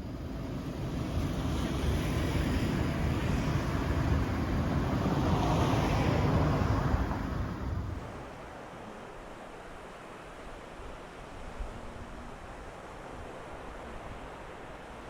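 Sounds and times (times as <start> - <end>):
wind on microphone: 0.0 - 8.3
waves washing onto beach: 0.0 - 15.0.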